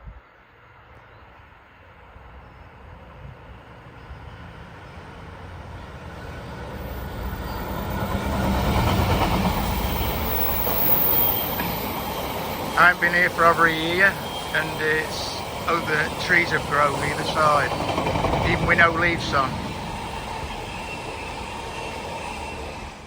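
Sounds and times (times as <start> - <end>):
train wheels rumbling on rails: 3.2 - 23.0
locomotive engine: 5.3 - 23.0.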